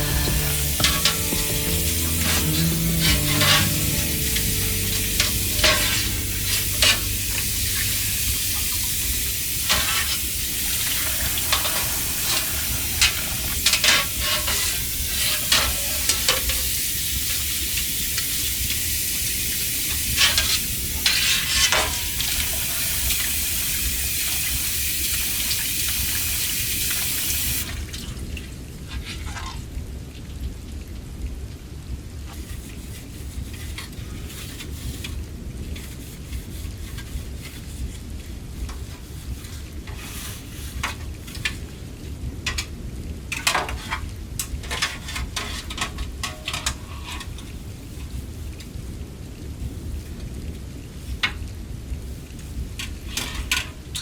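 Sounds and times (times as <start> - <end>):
utensil scraping a pot: 0.0 - 17.4, 19.4 - 25.2, 32.3 - 42.7, 43.4 - 49.0, 52.0 - 54.0
food sizzling in a pot: 0.0 - 27.7, 32.3 - 42.7.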